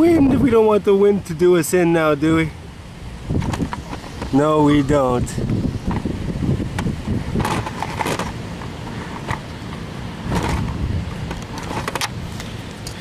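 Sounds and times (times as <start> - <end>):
road traffic rumble: 0.0 - 13.0
rustling and clicking handling noises: 3.4 - 4.4, 6.7 - 13.0.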